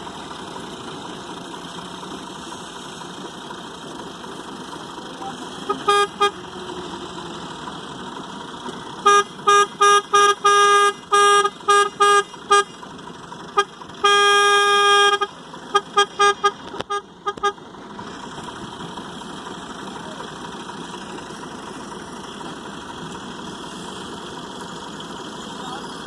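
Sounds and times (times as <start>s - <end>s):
vehicle horn toots: 5.4s - 6.6s, 9.0s - 12.8s, 13.5s - 17.6s.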